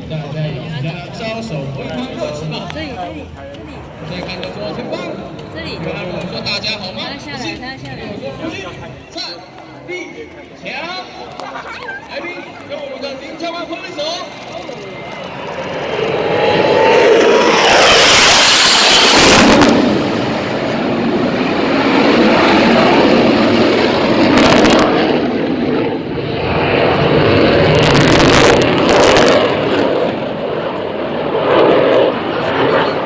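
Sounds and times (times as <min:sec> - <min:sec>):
jet engine roaring: 0:00.0 - 0:07.5, 0:11.2 - 0:33.0
harsh jet rushes: 0:13.4 - 0:33.0.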